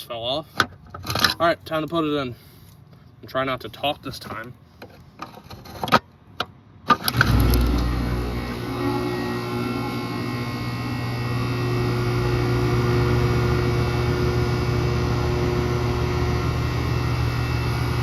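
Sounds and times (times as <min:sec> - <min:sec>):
air conditioner unit humming: 0:07.2 - 0:18.0.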